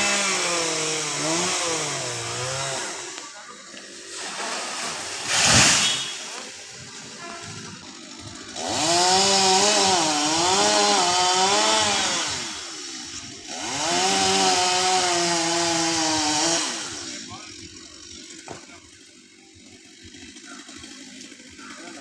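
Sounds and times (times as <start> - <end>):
chainsaw cutting tree: 0.0 - 22.0
short loud noise burst: 5.2 - 6.4.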